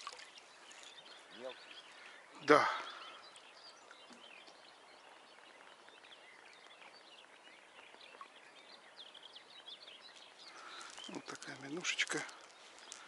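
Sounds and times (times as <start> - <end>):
songbirds chirping and whistling: 0.0 - 13.0.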